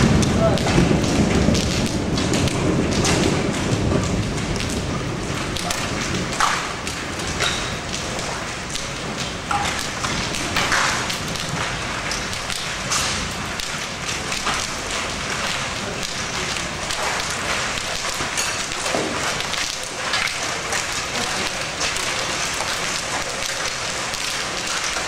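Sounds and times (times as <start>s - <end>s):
low thunder rumble: 0.0s - 18.3s
rain hissing: 0.0s - 25.0s
raindrops tapping on metal: 0.0s - 25.0s.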